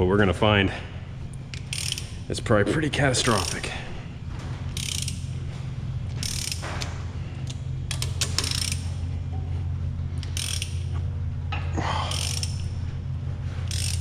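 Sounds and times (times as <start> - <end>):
low hum: 0.0 - 14.0
ratchet wrench clicking: 1.5 - 2.3, 3.2 - 3.8, 4.7 - 5.4, 6.1 - 9.0, 10.2 - 11.0, 12.0 - 12.8, 13.5 - 14.0.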